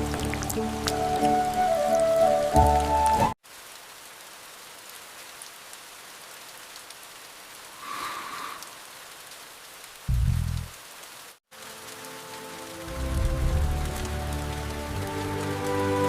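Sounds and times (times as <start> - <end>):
steady rain falling: 0.0 - 16.0
loud low thud: 10.1 - 10.7.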